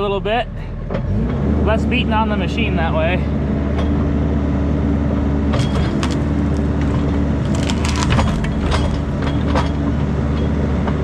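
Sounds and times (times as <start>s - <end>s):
diesel engine under load: 0.0s - 11.0s
wood cracking and splintering: 5.5s - 10.0s.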